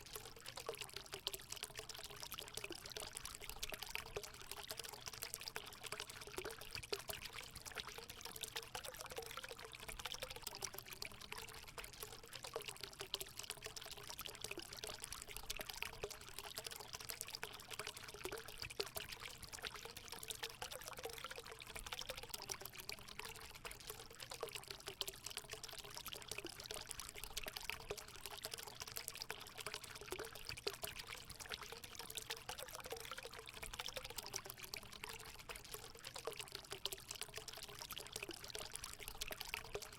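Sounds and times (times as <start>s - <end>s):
water pouring into a pool: 0.0s - 39.9s.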